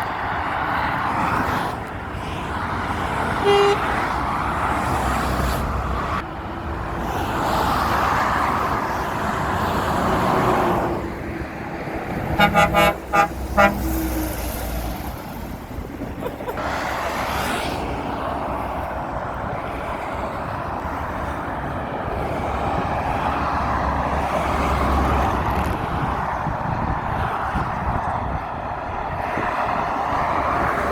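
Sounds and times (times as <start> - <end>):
road traffic passing: 0.0 - 30.9
vehicle horn toots: 3.4 - 3.9, 12.3 - 14.3.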